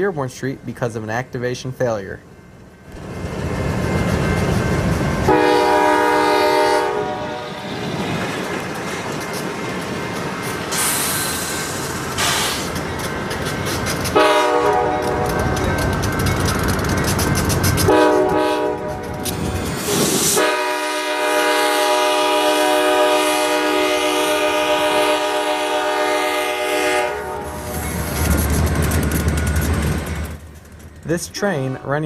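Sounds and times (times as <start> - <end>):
locomotive air horn blasts: 5.3 - 7.7, 14.2 - 15.4, 17.9 - 19.2, 20.3 - 27.6
air hiss: 10.7 - 12.7.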